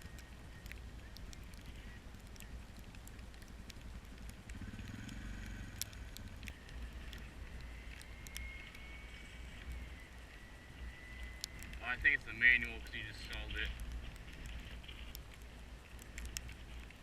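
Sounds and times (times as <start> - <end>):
sharp clicks: 0.0 - 9.8, 10.9 - 17.0
car engine running at low revs: 0.1 - 8.0.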